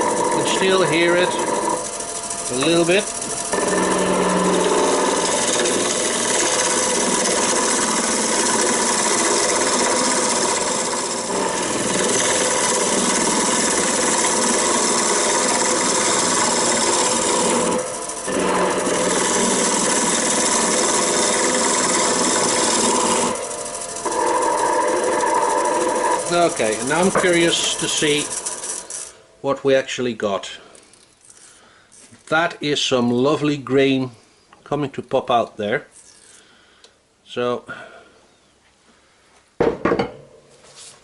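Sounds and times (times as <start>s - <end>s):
gouge cutting wood on lathe: 0.0s - 29.2s
lathe hum: 0.0s - 29.5s.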